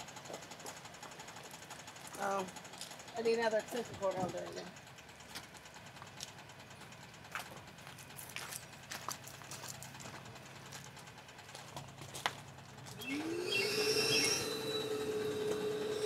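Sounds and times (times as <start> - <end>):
electric motor whine: 12.9 - 16.0.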